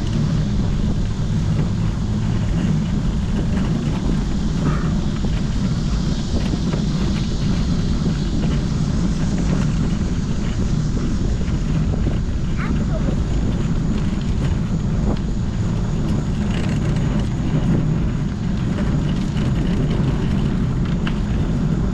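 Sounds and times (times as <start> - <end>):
wind and road rumble: 0.0 - 21.9.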